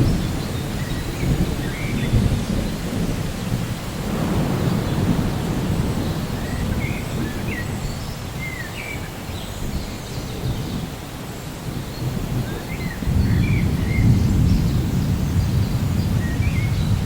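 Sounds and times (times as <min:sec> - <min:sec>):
rolling thunder: 0:00.0 - 0:08.6, 0:11.7 - 0:17.0
steady rain: 0:00.0 - 0:17.0
bird chirping: 0:12.0 - 0:17.0.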